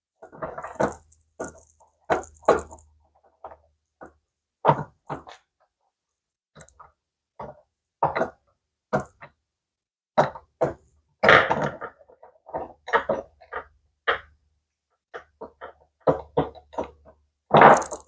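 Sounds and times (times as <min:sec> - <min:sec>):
small parts and tools clattering: 0:00.4 - 0:03.0, 0:17.6 - 0:18.0.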